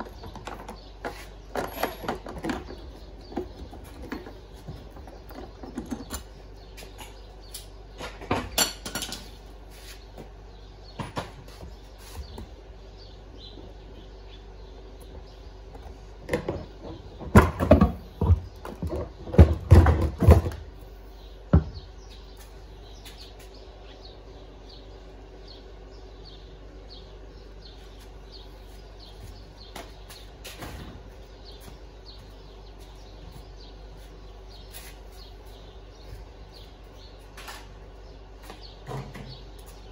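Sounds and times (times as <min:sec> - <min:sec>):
low steady hum: 0:00.0 - 0:39.9
knocks and clatter: 0:16.3 - 0:20.7.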